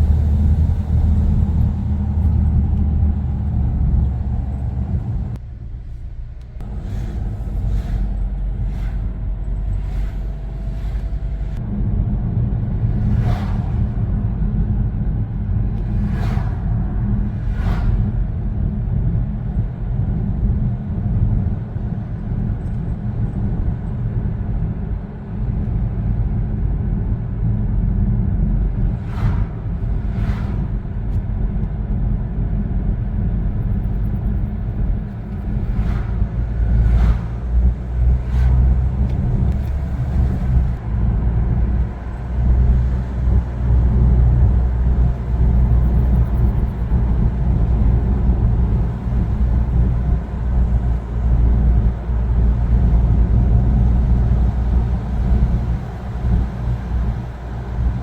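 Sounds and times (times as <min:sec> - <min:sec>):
car driving along road: 0:00.0 - 0:58.0
short whooshes: 0:12.8 - 0:14.3, 0:15.7 - 0:18.4, 0:28.8 - 0:31.2, 0:35.1 - 0:40.8.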